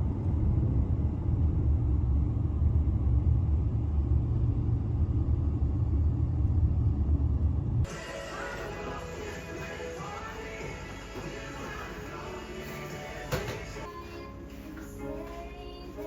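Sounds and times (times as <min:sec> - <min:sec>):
low rumble: 0:00.0 - 0:14.4
music: 0:07.9 - 0:16.0.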